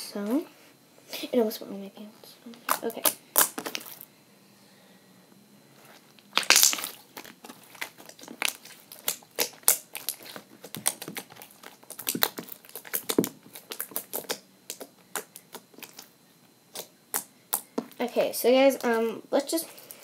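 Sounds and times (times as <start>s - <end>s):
slime squishing and popping: 2.7s - 4.0s, 6.3s - 16.1s, 16.7s - 18.0s.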